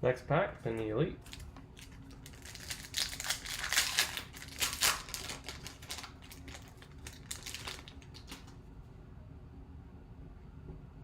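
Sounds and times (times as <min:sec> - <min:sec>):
foil wrapper tearing and crinkling: 0:01.3 - 0:08.5.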